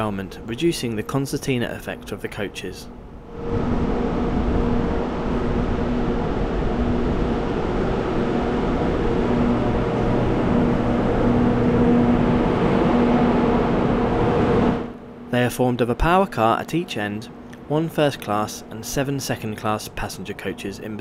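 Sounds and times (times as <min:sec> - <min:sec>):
train machinery rumbling: 0:00.0 - 0:16.4
deeper hum: 0:00.0 - 0:20.9
intermittent low hum: 0:00.0 - 0:21.0.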